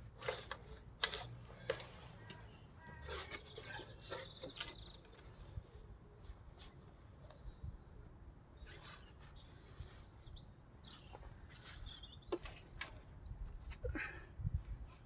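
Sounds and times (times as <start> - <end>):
small bird chirping: 2.2 - 6.3, 8.6 - 12.6.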